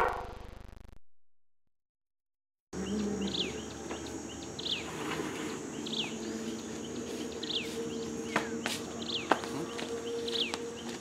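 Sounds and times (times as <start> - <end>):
high insect drone: 2.8 - 11.0.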